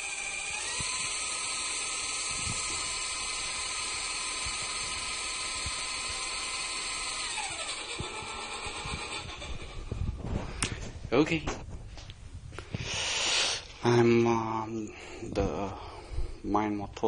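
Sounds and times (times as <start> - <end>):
model helicopter motor whirring: 0.0 - 10.2.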